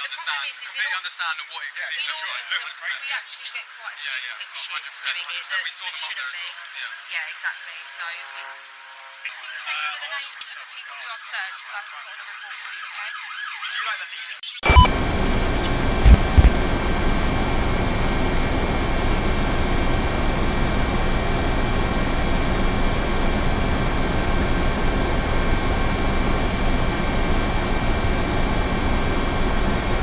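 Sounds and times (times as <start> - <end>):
helicopter rotor and engine: 14.7 - 30.0.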